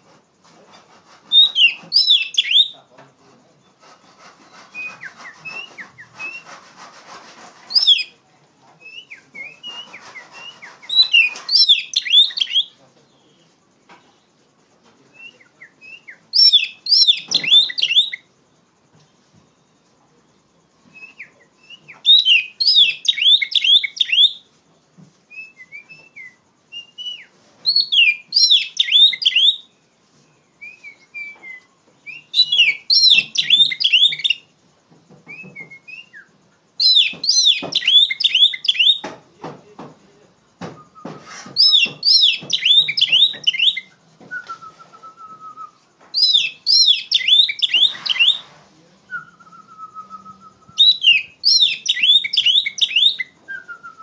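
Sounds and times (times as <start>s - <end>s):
bird singing sharp phrases: 1.3s - 2.9s, 7.7s - 14.4s, 15.0s - 18.3s, 19.6s - 24.5s, 25.3s - 34.5s, 35.3s - 39.1s, 40.1s - 48.5s, 49.1s - 54.0s
soft rustling: 47.9s - 49.2s.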